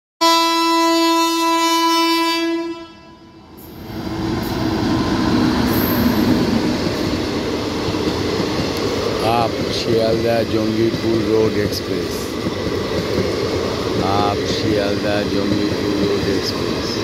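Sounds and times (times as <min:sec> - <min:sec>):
locomotive horn blast: 0:00.2 - 0:03.4
train rumbling and clattering past: 0:03.4 - 0:17.0.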